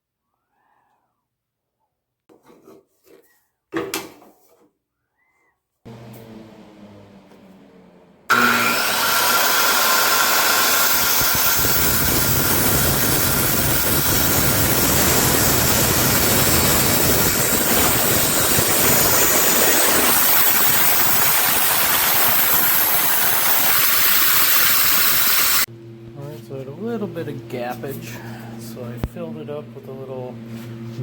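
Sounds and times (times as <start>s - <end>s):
power sander on wood: 5.9s - 25.7s.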